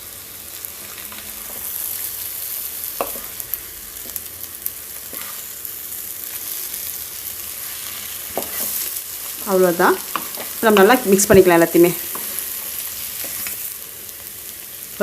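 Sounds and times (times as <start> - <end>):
food sizzling in hot oil: 0.0 - 15.0
spatula scraping a pan: 5.0 - 5.5, 7.5 - 9.4, 12.1 - 13.6.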